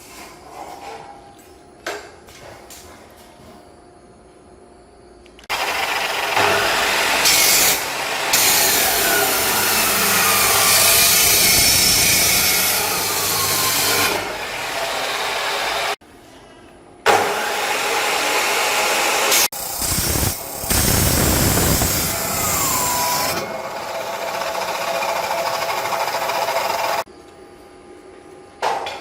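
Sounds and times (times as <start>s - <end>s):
loud machine running: 5.5s - 16.0s, 17.7s - 27.1s.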